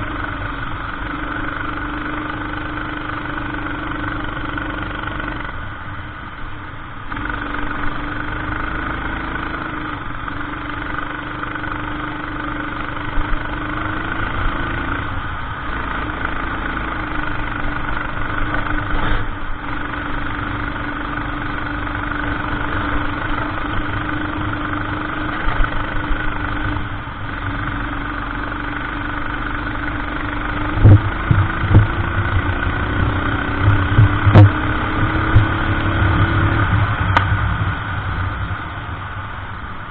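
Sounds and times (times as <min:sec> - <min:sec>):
racing kart engine: 0:00.0 - 0:39.9
loud low thumps: 0:33.7 - 0:34.6.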